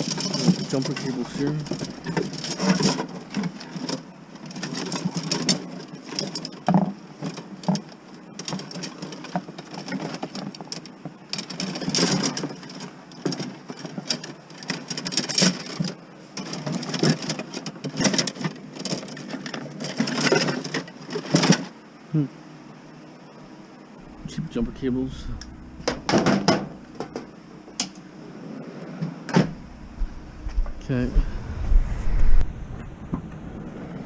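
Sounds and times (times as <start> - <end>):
jumper cables clattering: 0.0 - 21.7.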